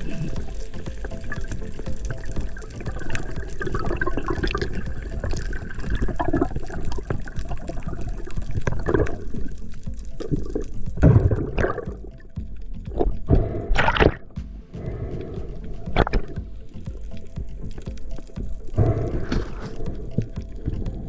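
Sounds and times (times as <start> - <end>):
water sloshing and bubbling: 0.0 - 21.0
thin irregular clicks: 15.1 - 21.0.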